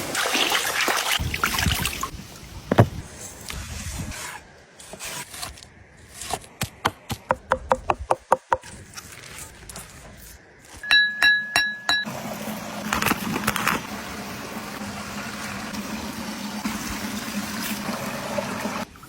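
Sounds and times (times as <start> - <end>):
sharp wooden knocks: 2.7 - 3.0
short high ringing notes: 10.8 - 12.1.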